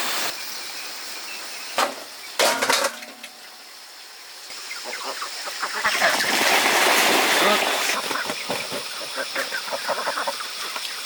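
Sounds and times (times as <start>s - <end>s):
chickens clucking: 4.5s - 6.6s, 7.3s - 11.0s.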